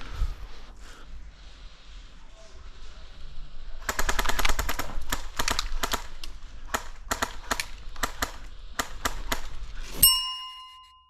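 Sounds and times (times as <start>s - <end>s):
airsoft guns firing: 3.8s - 9.7s.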